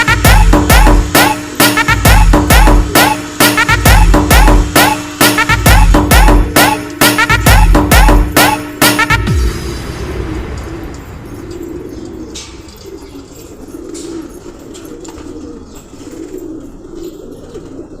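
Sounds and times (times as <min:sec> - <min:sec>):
pigeons cooing: 0:00.0 - 0:05.4, 0:10.5 - 0:18.0.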